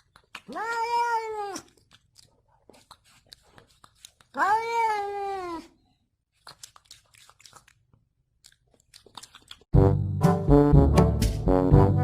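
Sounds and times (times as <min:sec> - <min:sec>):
cat meowing: 0:00.5 - 0:01.8, 0:04.3 - 0:05.8
faint crunches and clicks: 0:06.3 - 0:09.7
loud brass music: 0:09.8 - 0:12.0.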